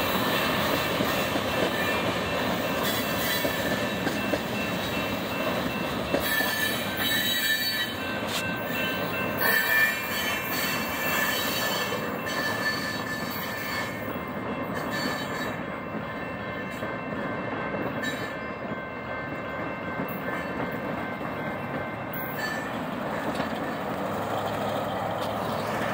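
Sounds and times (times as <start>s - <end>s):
freight train cars rolling on rails: 0.0s - 25.9s
high wheel squeal: 6.2s - 14.0s.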